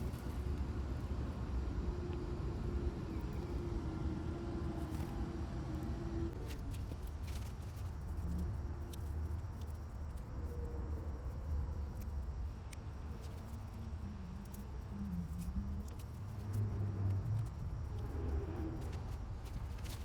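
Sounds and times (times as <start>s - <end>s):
steady low rumble: 7.9s - 20.0s.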